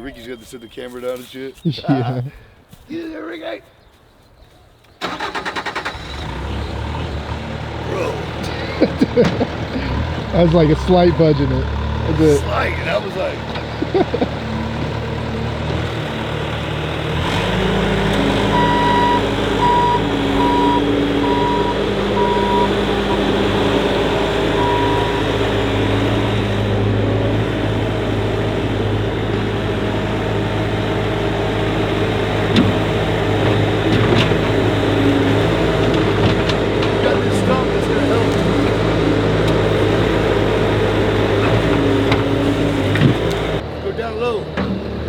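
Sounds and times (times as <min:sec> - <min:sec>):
loader engine running: 0:05.0 - 0:45.0
backup alarm beeping: 0:18.5 - 0:23.4, 0:24.0 - 0:25.4.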